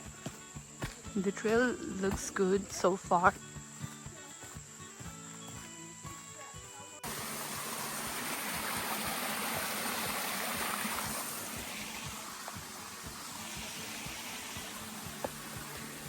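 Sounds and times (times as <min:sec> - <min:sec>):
water rushing: 0:07.0 - 0:16.0.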